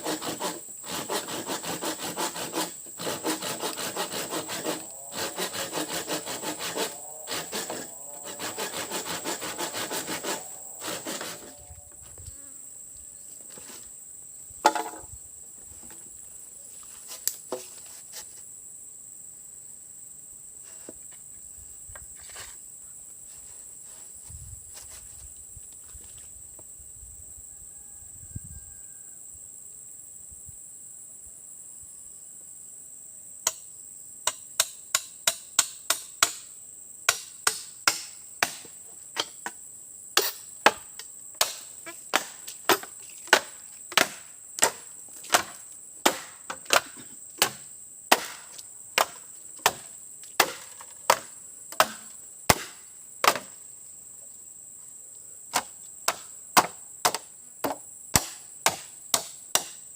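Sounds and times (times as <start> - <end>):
insects droning: 0.0 - 59.9
wood being chopped: 37.1 - 39.5, 40.2 - 53.6, 55.5 - 59.8.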